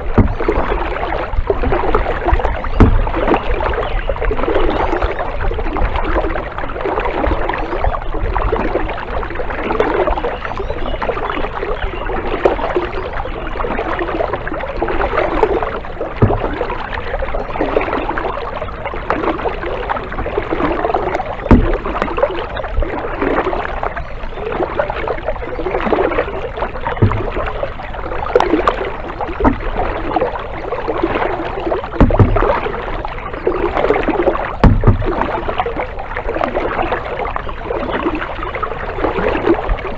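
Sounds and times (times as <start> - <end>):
short low knocks: 0.0 - 3.7, 16.1 - 16.8, 21.5 - 22.3, 27.0 - 27.8, 32.0 - 32.7, 34.6 - 35.5
paddle strokes splashing water: 0.0 - 39.9.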